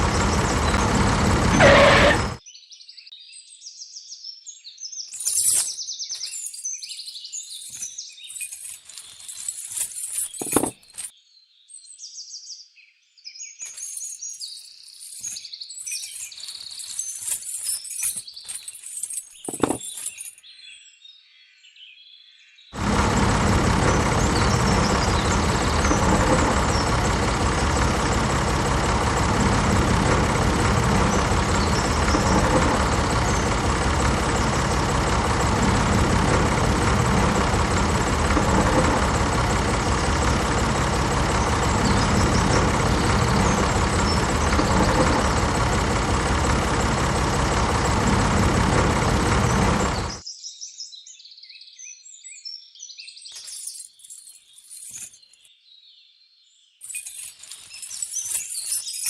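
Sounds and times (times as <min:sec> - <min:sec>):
tractor engine idling: 0:00.0 - 0:02.4, 0:22.8 - 0:50.2.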